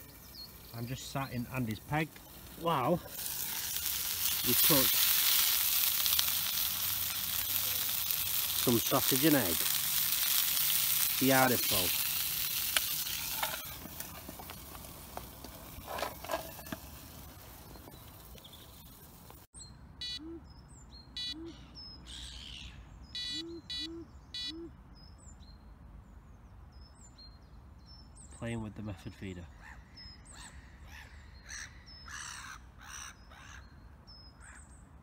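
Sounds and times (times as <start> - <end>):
sausages sizzling in a pan: 0.0 - 19.5
birds calling: 0.0 - 25.6, 26.2 - 35.0
small birds chirping: 0.0 - 34.9.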